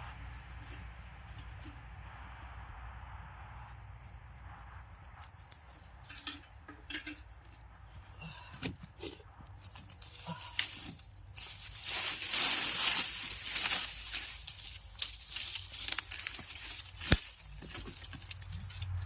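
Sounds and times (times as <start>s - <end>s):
brush rustling: 0.0s - 2.4s, 3.5s - 19.0s
dry sticks snapping: 9.5s - 19.0s.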